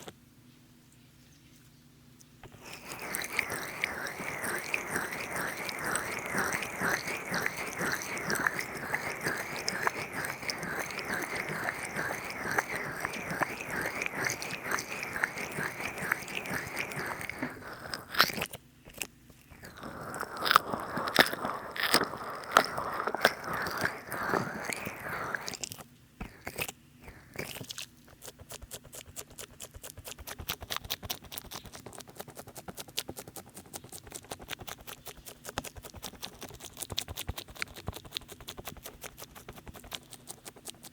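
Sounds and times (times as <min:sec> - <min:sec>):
rapid fine crackling taps: 0:02.4 - 0:26.4
oiled hands squelching: 0:02.4 - 0:26.5.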